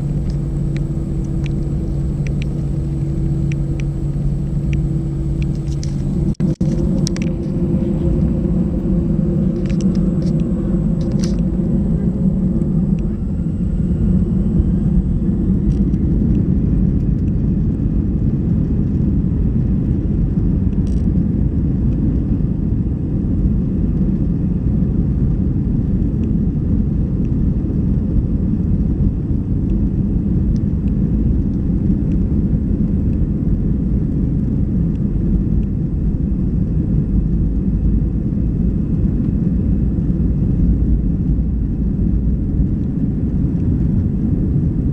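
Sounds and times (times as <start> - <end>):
faint rising whine: 0.0 - 21.0
jet engine cabin rumble: 0.0 - 44.9.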